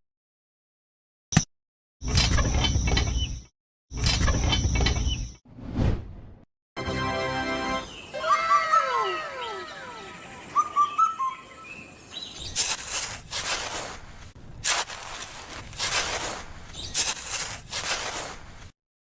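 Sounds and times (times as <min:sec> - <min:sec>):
birds chirping: 0:07.6 - 0:13.0.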